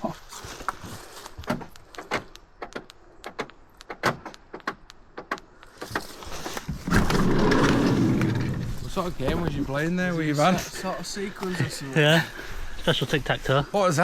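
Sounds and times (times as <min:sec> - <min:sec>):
door lock clicking and clunking: 0:01.5 - 0:06.0.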